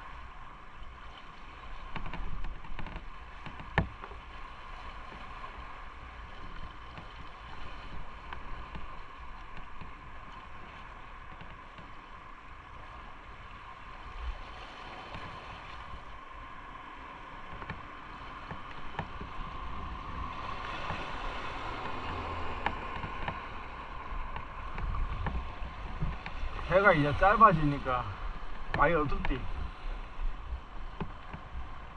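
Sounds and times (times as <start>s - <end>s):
wind buffeting microphone: 18.4s - 31.9s.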